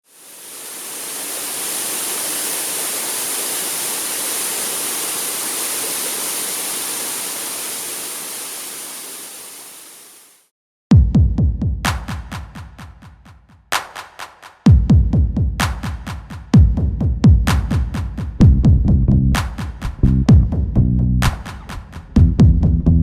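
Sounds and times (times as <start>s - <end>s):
waterfall roaring: 0.1s - 10.4s.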